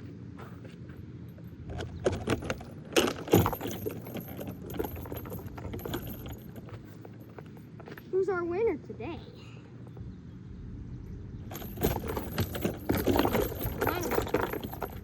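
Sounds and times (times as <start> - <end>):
low steady rumble: 0.0 - 15.0
small hard objects clattering: 11.5 - 15.0.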